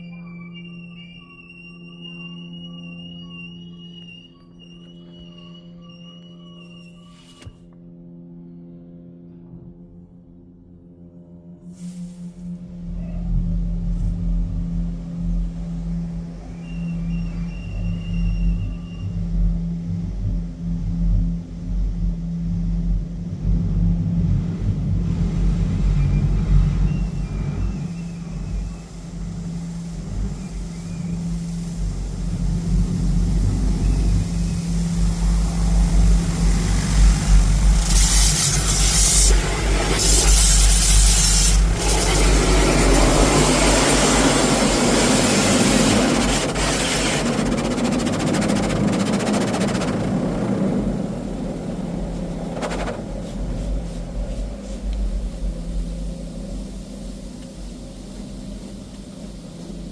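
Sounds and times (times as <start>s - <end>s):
car wash machine humming: 12.6s - 59.9s
water jets hissing on car: 25.0s - 59.9s.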